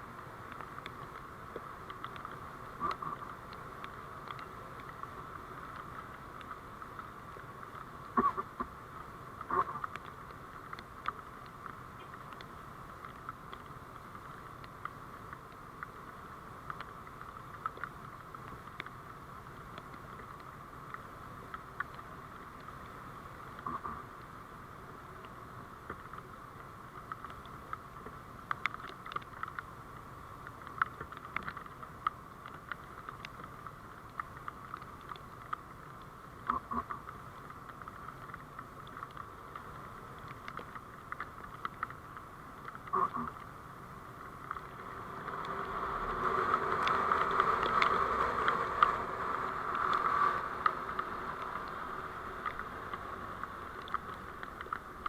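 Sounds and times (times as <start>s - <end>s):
small clicks and rattles: 25.2s - 55.0s
vehicle hum: 44.4s - 55.0s.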